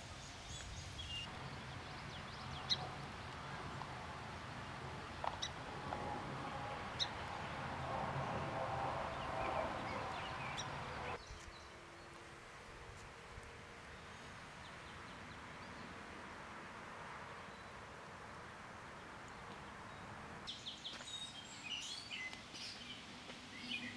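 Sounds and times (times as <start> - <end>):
outdoor background noise: 0.0 - 23.9
bird calls: 0.1 - 3.2, 9.1 - 11.7.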